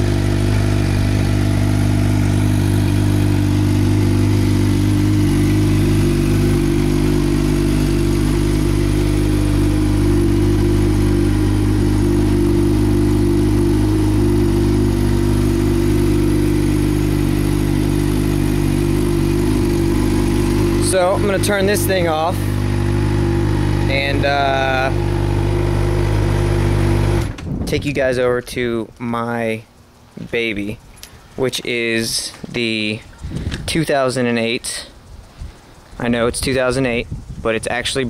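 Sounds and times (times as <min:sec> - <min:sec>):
motorcycle engine idling: 0:00.0 - 0:27.3.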